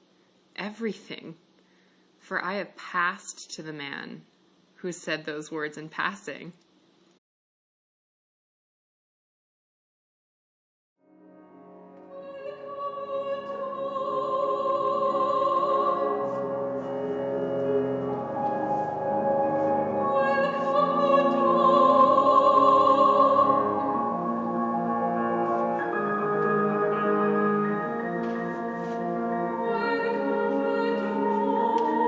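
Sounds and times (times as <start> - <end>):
instrumental accompaniment: 11.2 - 32.0
operatic singing with vibrato: 12.1 - 32.0.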